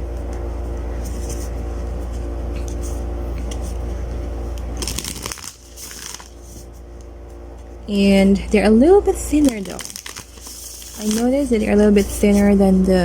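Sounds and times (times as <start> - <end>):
background hum: 0.0 - 13.0
cards riffle-shuffled: 4.8 - 6.8, 9.3 - 13.0.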